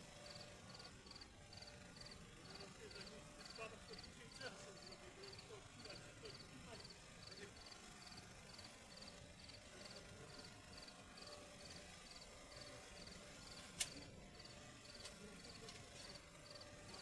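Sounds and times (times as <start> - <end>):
sharp click: 13.7 - 14.0.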